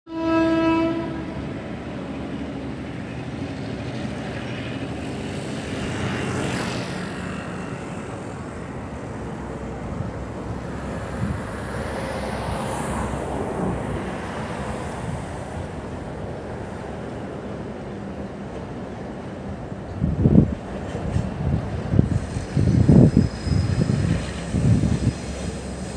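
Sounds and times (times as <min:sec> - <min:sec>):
train horn blast: 0:00.1 - 0:01.5
freight train rumbling by: 0:00.1 - 0:25.9.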